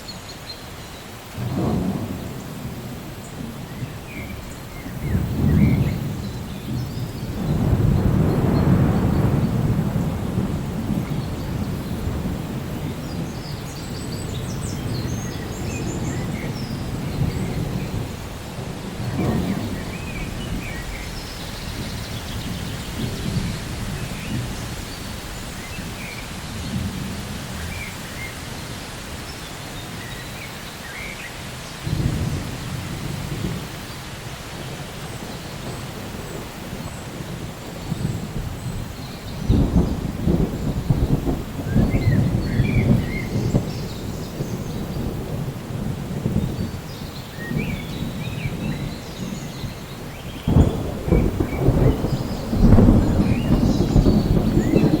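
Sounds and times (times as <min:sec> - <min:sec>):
steady rain: 0:00.0 - 0:55.0
rolling thunder: 0:01.2 - 0:30.4, 0:31.8 - 0:55.0.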